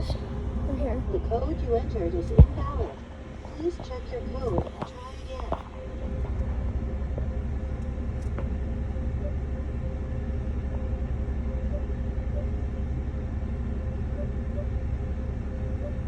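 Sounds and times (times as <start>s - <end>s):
car engine idling: 0.0s - 16.0s
faint keypad beeps: 9.2s - 10.0s, 10.7s - 12.6s, 14.0s - 14.9s, 15.6s - 16.0s.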